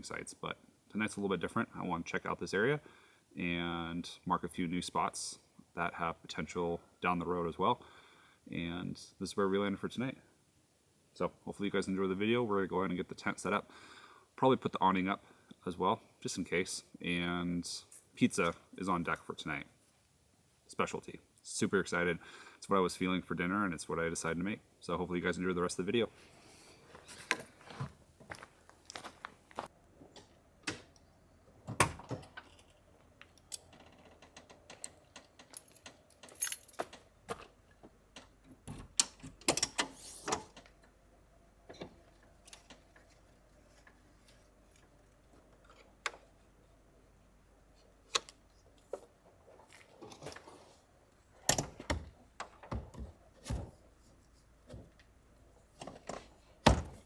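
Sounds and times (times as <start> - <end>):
camping gear clinking and knocking: 26.8 - 29.7, 32.0 - 38.4.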